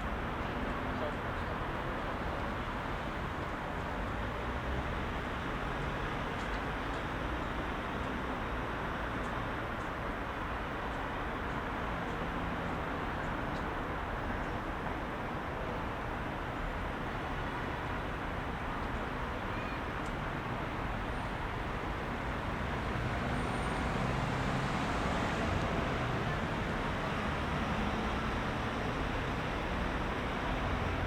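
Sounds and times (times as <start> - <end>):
heavy road traffic: 0.0 - 31.0.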